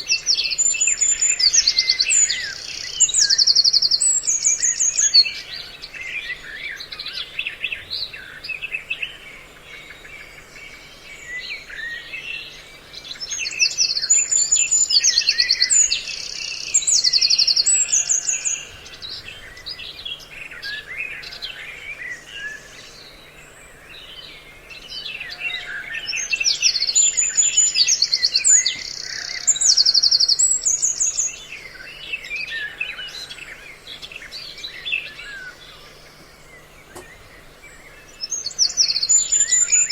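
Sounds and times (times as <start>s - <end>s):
songbirds chirping and calling: 0.0s - 39.9s.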